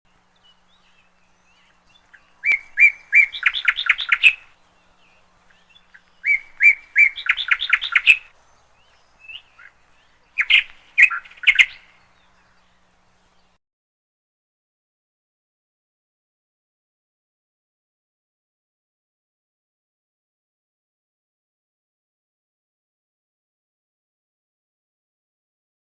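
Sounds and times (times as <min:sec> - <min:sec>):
songbird singing: 0:00.1 - 0:13.6.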